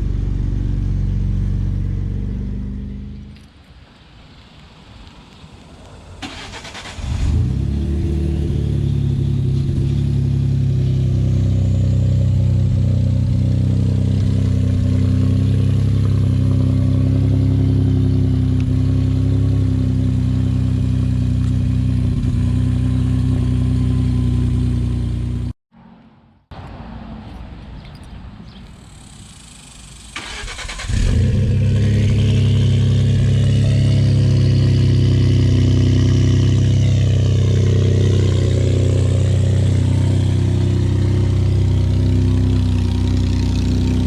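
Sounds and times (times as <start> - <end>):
engine fast idle: 30.0 - 31.4.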